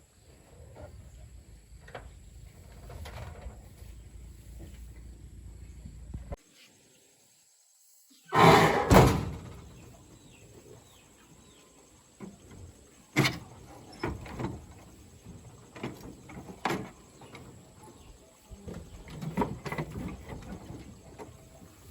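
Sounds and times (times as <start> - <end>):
loud sliding clatter: 8.4 - 9.5
bang: 8.4 - 9.6.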